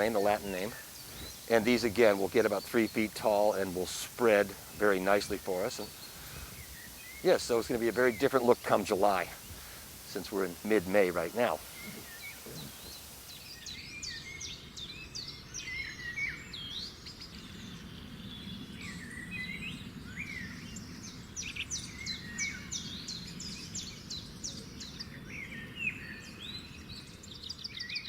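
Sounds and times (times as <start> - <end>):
songbirds singing and calling: 0.0 - 28.0.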